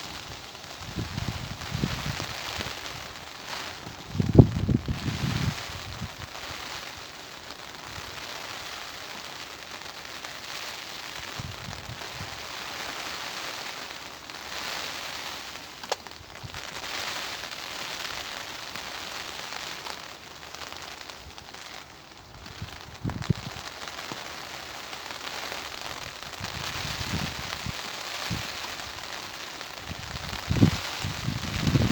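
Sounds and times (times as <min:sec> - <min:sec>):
rain pattering: 0:00.0 - 0:31.9
wind buffeting microphone: 0:00.1 - 0:02.9, 0:03.8 - 0:06.2, 0:22.4 - 0:23.6, 0:26.4 - 0:28.5, 0:29.8 - 0:31.9
sharp click: 0:15.8 - 0:16.0.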